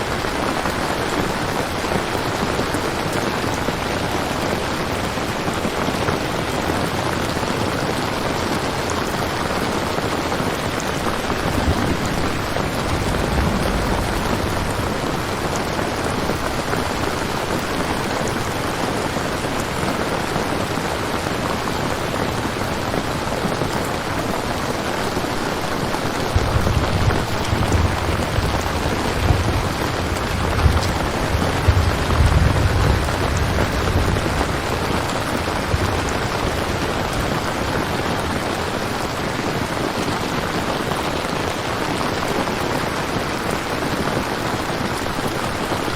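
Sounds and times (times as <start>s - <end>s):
steady rain falling: 0.0s - 45.9s
thunder rumbling: 10.0s - 19.8s, 24.8s - 39.1s.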